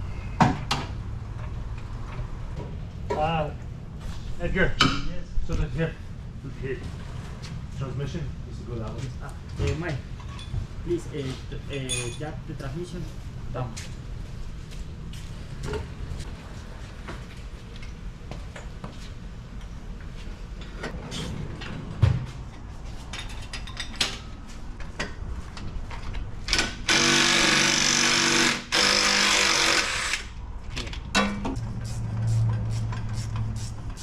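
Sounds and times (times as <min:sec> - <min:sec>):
metal clinks: 0:11.8 - 0:12.3
power tool running: 0:26.6 - 0:30.3.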